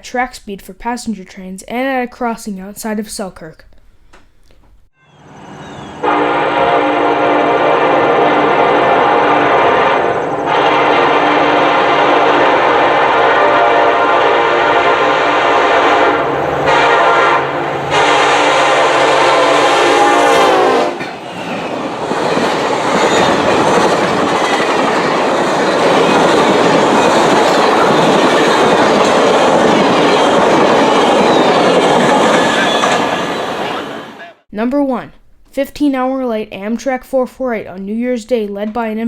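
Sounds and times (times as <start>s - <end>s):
train rushing and clattering: 5.1s - 34.4s
locomotive horn blasts: 6.0s - 21.0s.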